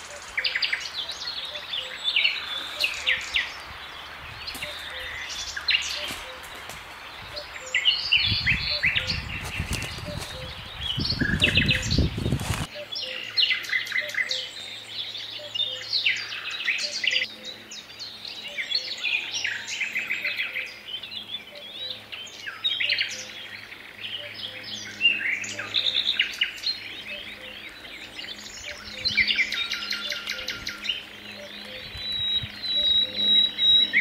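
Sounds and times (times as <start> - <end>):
songbirds trilling and chirping: 0.0 - 34.0.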